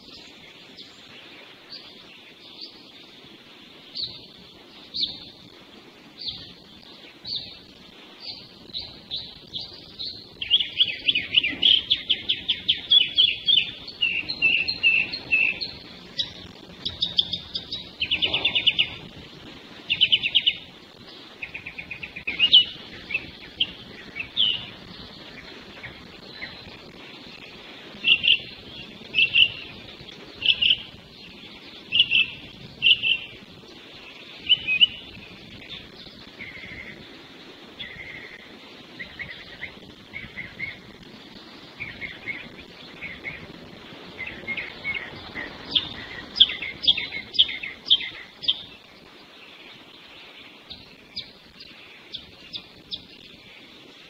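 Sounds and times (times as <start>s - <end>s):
songbirds chirping: 0.0s - 54.0s
bird trills: 6.2s - 37.0s, 41.7s - 48.8s.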